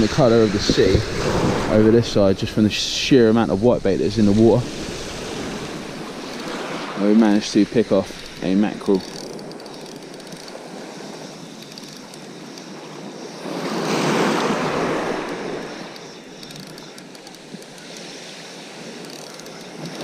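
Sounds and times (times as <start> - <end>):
wave breaking: 0.0 - 9.0, 13.4 - 16.4
surf washing on shore: 0.0 - 20.0.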